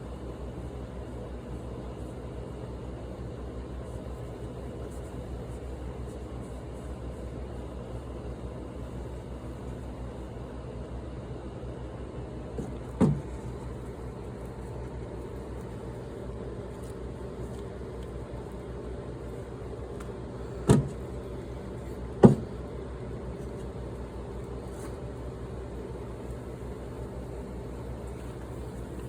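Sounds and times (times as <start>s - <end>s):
workshop hum and hiss: 0.0s - 29.0s
sharp knocks: 22.2s - 22.6s.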